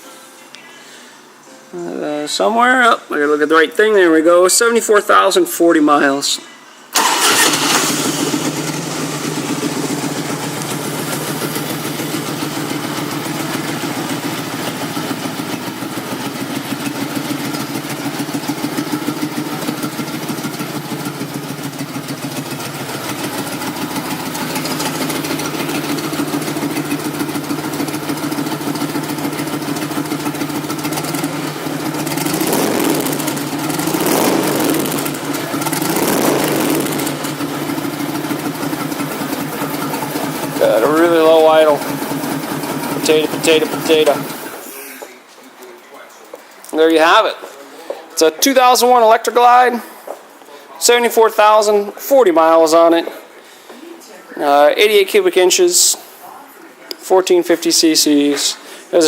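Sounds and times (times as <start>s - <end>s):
motorcycle engine idling and revving: 7.0s - 44.6s.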